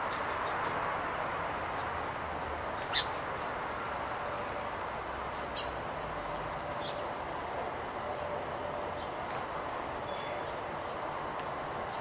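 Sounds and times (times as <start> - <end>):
songbird chirps: 0.0 - 5.9, 6.7 - 7.1, 10.0 - 11.1
outdoor background hum: 0.0 - 12.0.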